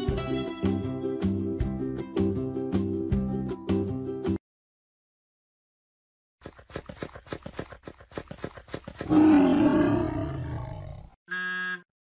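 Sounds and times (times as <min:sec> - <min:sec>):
tiger growling and roaring: 0:09.0 - 0:11.2.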